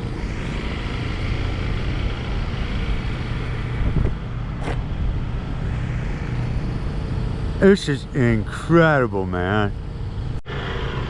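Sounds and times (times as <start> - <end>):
motorcycle engine running: 0.0 - 8.6
road traffic: 0.0 - 11.0.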